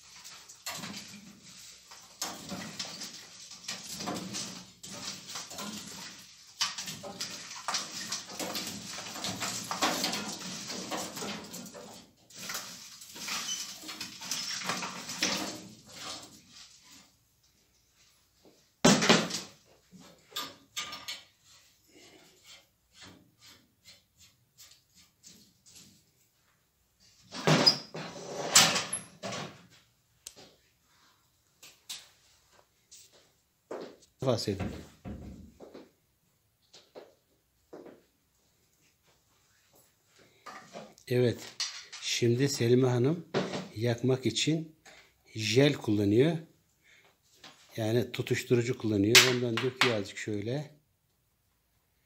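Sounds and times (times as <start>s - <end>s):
wood stove knocking and scraping: 0.0s - 16.5s
wood and kindling being handled: 0.0s - 18.6s.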